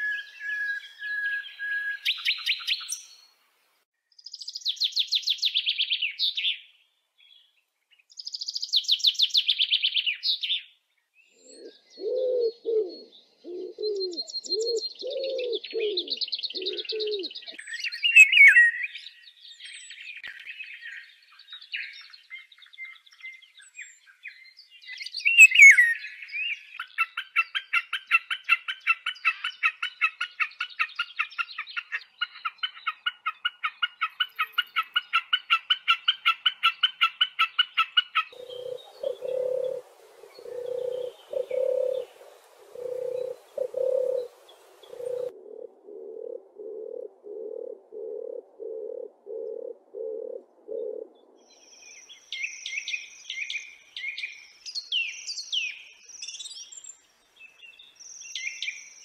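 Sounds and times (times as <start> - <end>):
nightingale singing: 0.0 - 3.4, 4.0 - 27.8, 29.0 - 45.3, 46.7 - 59.0
wood pigeon cooing: 11.4 - 17.6, 38.4 - 51.4
repeated chipping bird calls: 11.4 - 45.3
higher bird chirps: 38.2 - 45.3.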